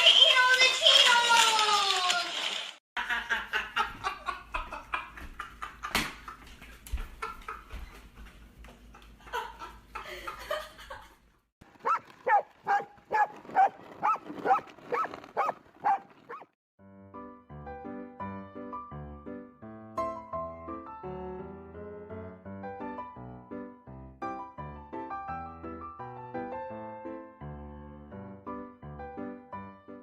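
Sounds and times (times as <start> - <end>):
dog barking: 11.8 - 16.5.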